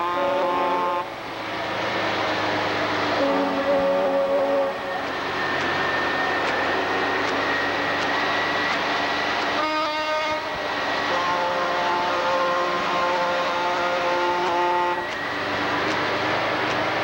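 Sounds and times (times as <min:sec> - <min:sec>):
truck air horns: 0:00.0 - 0:01.1, 0:03.2 - 0:05.0, 0:09.5 - 0:15.3
engine and road noise: 0:00.1 - 0:17.0.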